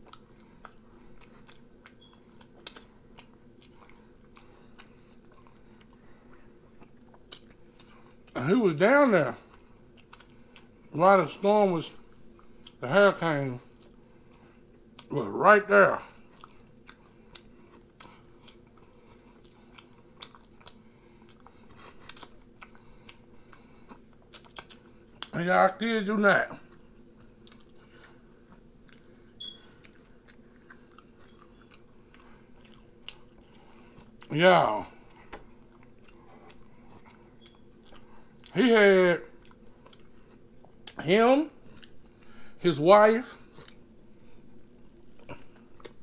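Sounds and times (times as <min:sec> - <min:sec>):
wet mouth clicks and smacks: 0:00.0 - 0:05.9, 0:09.5 - 0:10.7, 0:19.4 - 0:23.2, 0:24.2 - 0:25.3
man chewing food: 0:00.0 - 0:15.3, 0:15.9 - 0:25.4, 0:26.5 - 0:42.6, 0:43.3 - 0:46.0
low room hum: 0:00.0 - 0:46.0.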